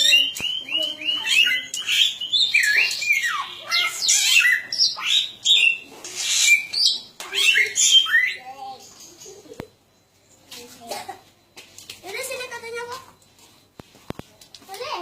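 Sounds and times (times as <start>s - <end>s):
bird singing whistled notes: 0.0s - 9.3s.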